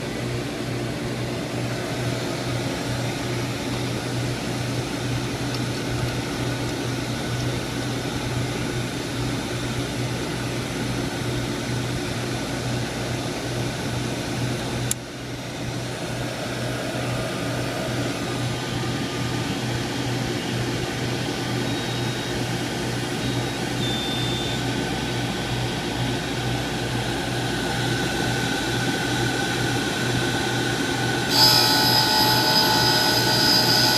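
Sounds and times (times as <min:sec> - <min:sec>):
machine motors whirring: 0:31.3 - 0:33.9.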